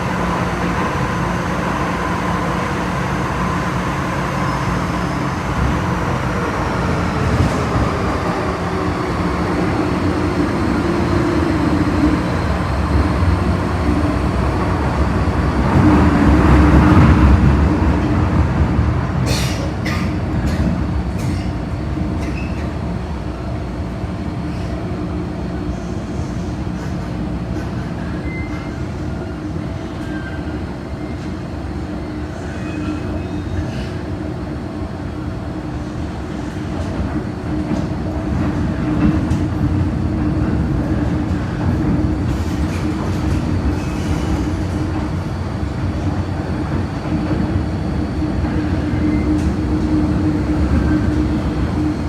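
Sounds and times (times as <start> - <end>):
train motor hum: 0.0 - 21.5
train rumble and rail noise: 0.0 - 52.0.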